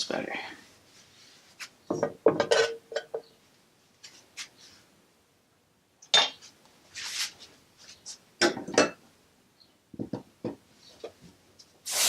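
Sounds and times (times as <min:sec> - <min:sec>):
dishes and utensils clinking: 0:01.9 - 0:03.3, 0:08.4 - 0:09.0.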